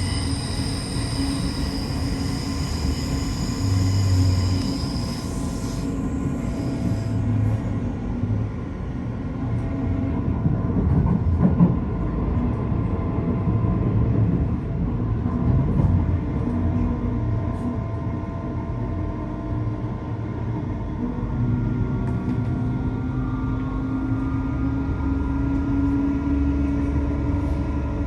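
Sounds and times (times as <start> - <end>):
faint whining tones: 0.0 - 8.1
train wheels rumbling on track: 0.0 - 28.0.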